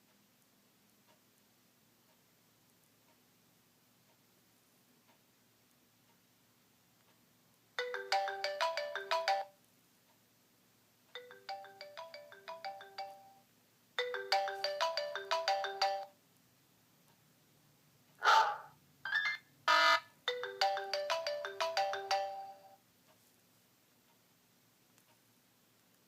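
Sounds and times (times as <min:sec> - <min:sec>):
phone ringtone: 0:07.8 - 0:09.6, 0:11.2 - 0:13.4, 0:14.0 - 0:16.2, 0:19.8 - 0:22.8.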